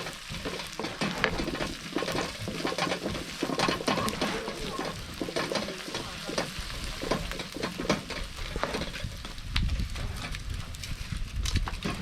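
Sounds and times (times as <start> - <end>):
food sizzling in hot oil: 0.0 - 9.6.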